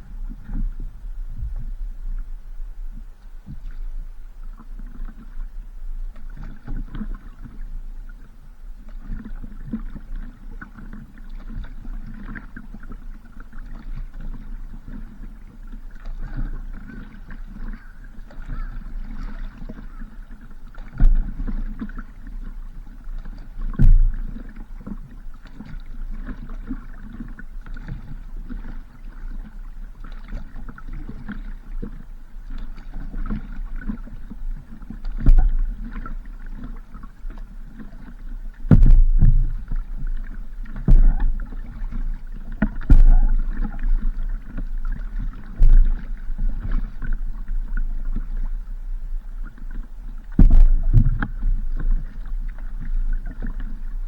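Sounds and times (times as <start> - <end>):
water lapping and splashing: 0.0 - 54.0
heavy thumps: 38.7 - 39.7, 42.9 - 43.5, 50.4 - 51.3
low rumble: 38.7 - 46.5, 50.4 - 52.8.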